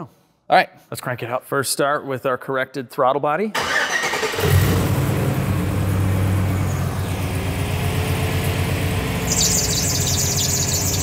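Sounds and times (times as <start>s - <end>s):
car engine starting and idling: 3.6s - 11.0s.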